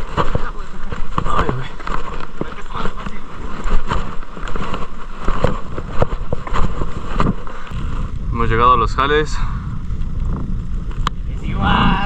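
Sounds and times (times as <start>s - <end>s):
short knocks and crunches: 0.0s - 7.6s
wind buffeting microphone: 0.0s - 12.0s.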